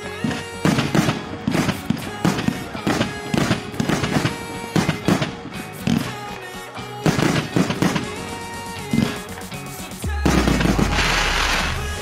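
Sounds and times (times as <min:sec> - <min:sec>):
background music: 0:00.0 - 0:12.0
fireworks bursting with bangs: 0:00.0 - 0:12.0
firework crackle: 0:07.1 - 0:12.0.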